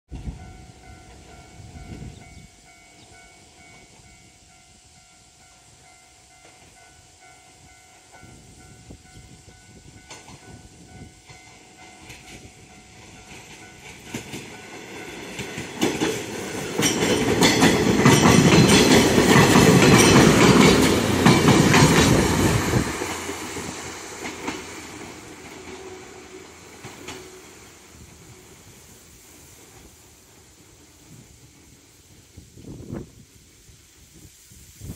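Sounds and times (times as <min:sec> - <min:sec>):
electric train wheels clacking: 0:05.5 - 0:32.4.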